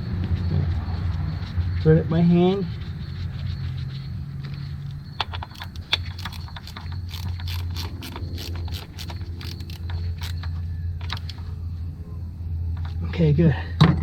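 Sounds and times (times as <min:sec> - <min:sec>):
steady low hum: 0:00.0 - 0:13.9
small ratchet clicking: 0:05.2 - 0:11.4.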